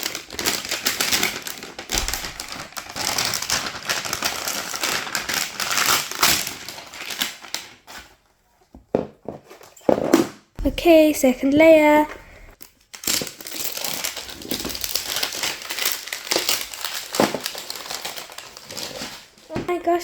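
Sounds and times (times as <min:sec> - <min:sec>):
toy packaging crinkling: 0:00.0 - 0:07.9, 0:12.6 - 0:19.5.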